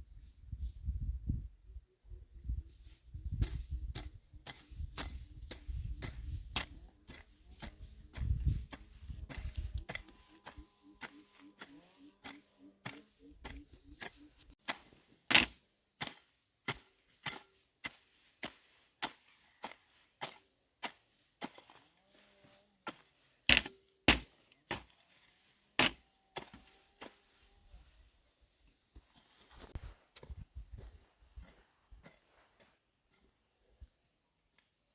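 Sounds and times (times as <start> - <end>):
tool striking wood: 14.6 - 16.2, 25.8 - 26.0.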